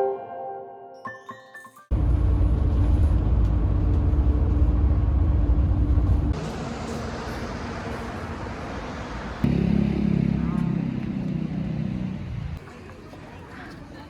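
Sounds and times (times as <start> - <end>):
motor vehicle low rumble: 1.9 - 12.7.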